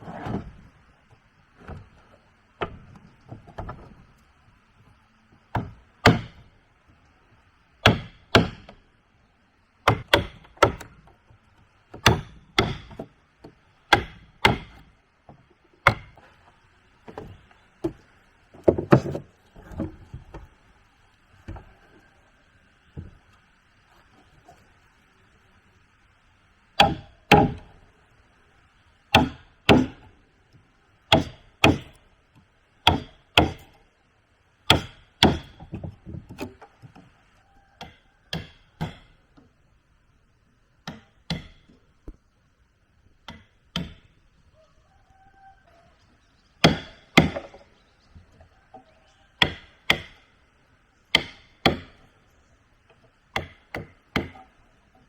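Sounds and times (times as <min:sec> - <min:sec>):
blade chopping into wood: 0:12.0 - 0:13.0, 0:13.9 - 0:14.8, 0:26.8 - 0:27.6, 0:29.2 - 0:30.0, 0:31.2 - 0:32.0, 0:32.9 - 0:33.7, 0:46.6 - 0:47.6.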